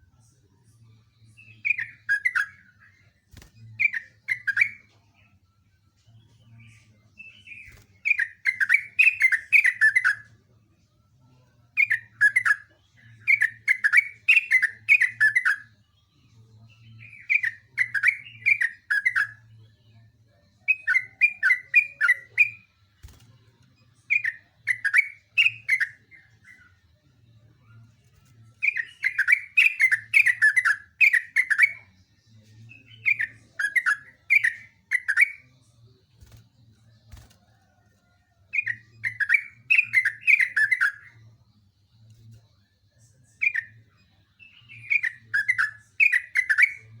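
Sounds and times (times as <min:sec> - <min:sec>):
bulbul singing: 0:01.3 - 0:04.9, 0:06.6 - 0:10.2, 0:11.8 - 0:15.7, 0:16.6 - 0:19.5, 0:24.1 - 0:26.8, 0:28.6 - 0:32.0, 0:32.6 - 0:35.5, 0:38.5 - 0:41.2, 0:44.4 - 0:47.0.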